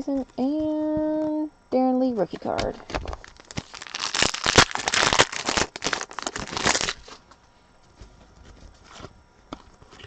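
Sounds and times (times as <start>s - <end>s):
foil wrapper crinkling: 2.3s - 7.4s.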